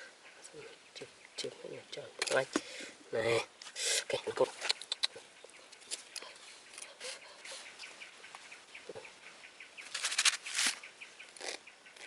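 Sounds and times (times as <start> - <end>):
quail peeping: 4.2 - 12.0.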